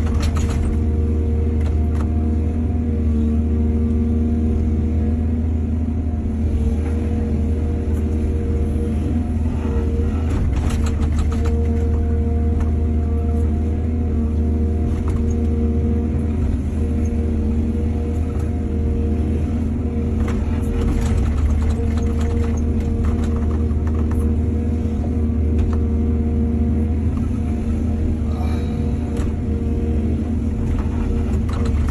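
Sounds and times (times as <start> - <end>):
excavator engine humming: 0.0 - 31.9
knocking and clatter: 20.8 - 24.2.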